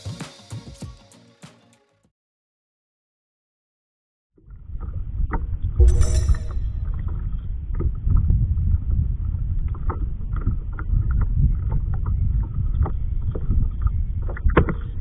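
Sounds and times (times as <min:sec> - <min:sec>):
wind rumbling on microphone: 0:04.5 - 0:15.0.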